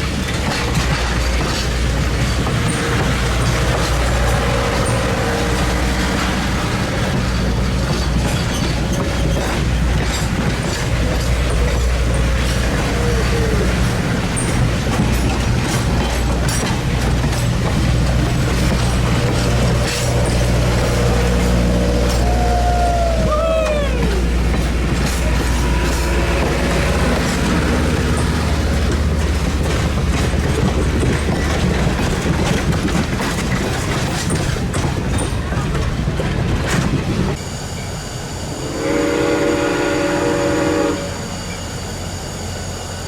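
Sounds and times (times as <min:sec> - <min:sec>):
train wheels clicking on rails: 0:00.0 - 0:43.0
wheel squeals: 0:01.5 - 0:35.9.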